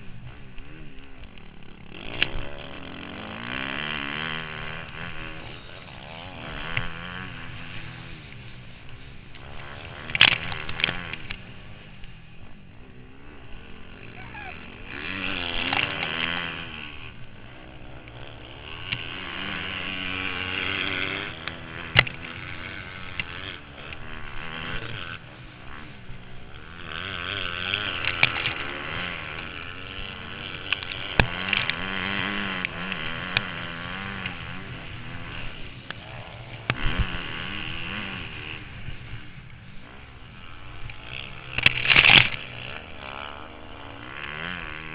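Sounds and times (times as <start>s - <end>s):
motocross engine revving: 0.0s - 44.9s.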